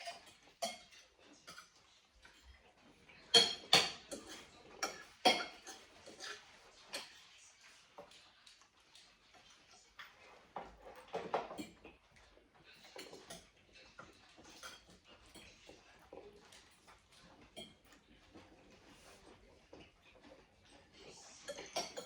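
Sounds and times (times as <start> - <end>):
cutlery clicking against plates: 0.0 - 1.8, 3.2 - 7.2, 12.8 - 15.7, 17.5 - 18.0.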